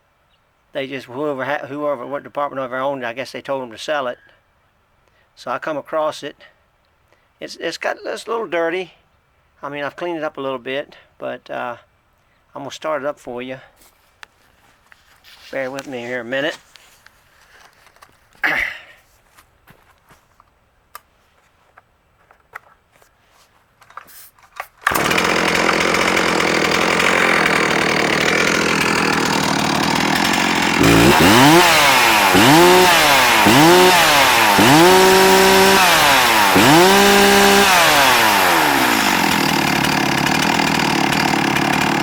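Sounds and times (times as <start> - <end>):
chainsaw idling and revving: 24.8 - 42.0.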